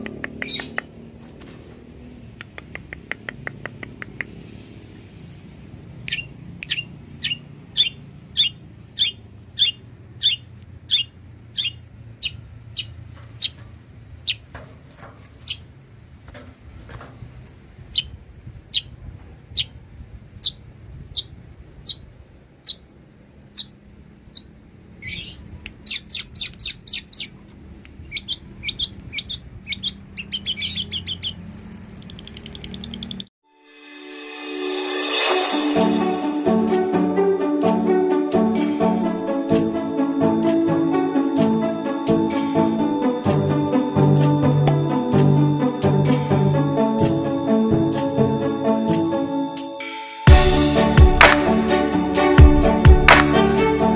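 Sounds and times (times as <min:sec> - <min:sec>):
shrike singing harsh chirps: 0:06.1 - 0:13.6.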